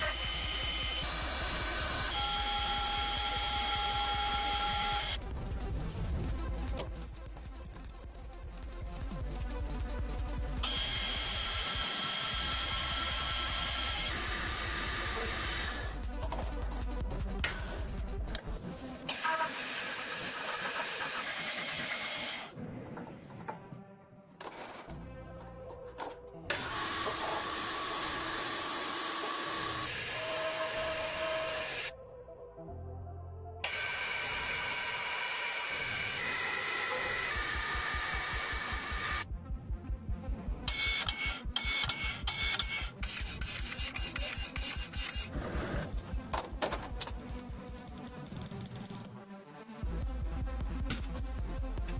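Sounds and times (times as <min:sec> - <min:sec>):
machine tool hiss and whine: 0:00.0 - 0:05.2, 0:26.5 - 0:31.9.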